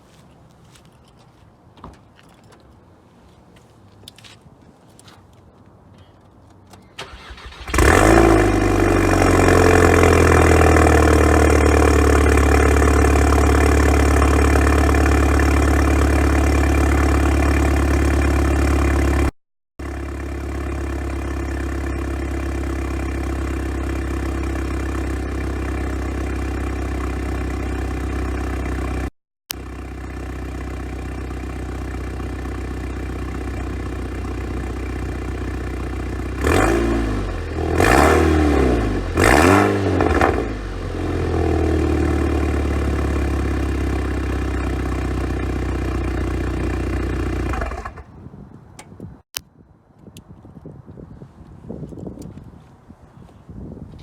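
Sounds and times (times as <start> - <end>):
car engine cranking and starting: 6.7 - 19.3, 29.6 - 48.1
car engine fast idle: 7.0 - 9.2.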